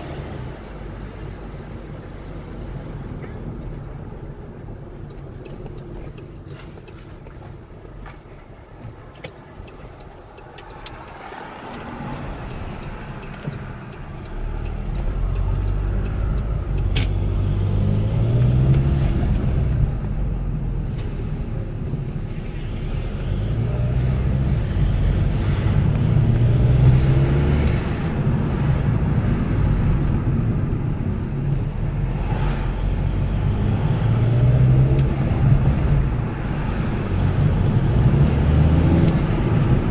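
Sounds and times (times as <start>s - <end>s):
turbodiesel engine accelerating: 10.0s - 39.9s.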